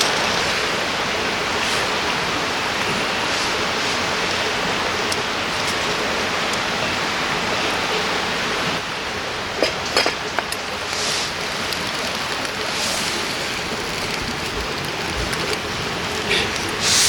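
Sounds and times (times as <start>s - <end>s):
soft hissing: 0.0s - 4.3s, 10.6s - 14.1s, 16.3s - 17.0s
river flowing: 0.0s - 17.0s.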